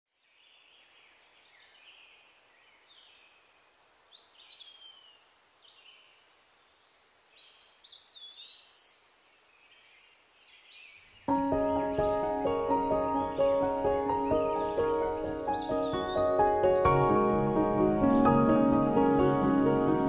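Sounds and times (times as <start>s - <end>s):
birds singing: 0.1s - 20.0s
faint steady hiss: 0.1s - 20.0s.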